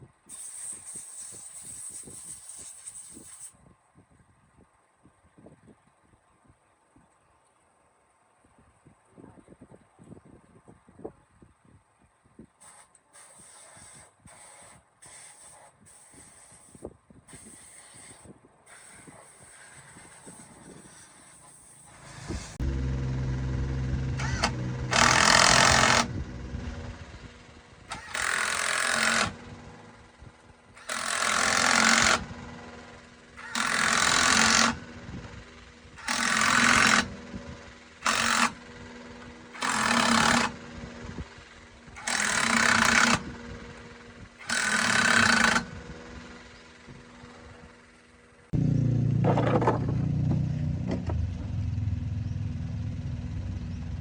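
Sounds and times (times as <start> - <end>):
pneumatic impact wrench hammering: 0.3 - 3.6, 12.6 - 23.0, 23.7 - 48.1
low motor hum: 21.9 - 30.9, 31.8 - 54.0.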